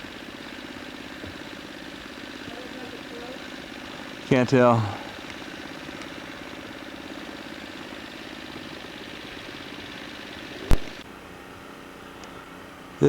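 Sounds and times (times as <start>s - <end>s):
engine idling: 0.0s - 13.0s
sharp click: 10.6s - 11.0s.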